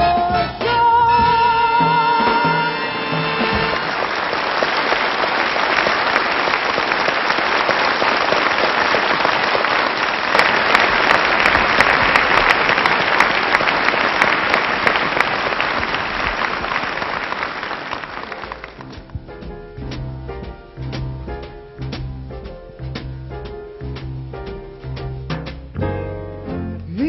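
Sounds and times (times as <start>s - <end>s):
audience applauding: 2.8s - 19.2s.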